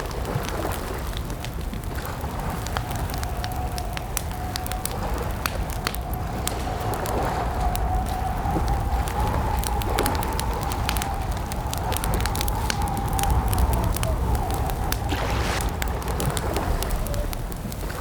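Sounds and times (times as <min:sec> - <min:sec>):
campfire crackling and popping: 0:00.0 - 0:18.0
steady low rumble: 0:04.2 - 0:18.0.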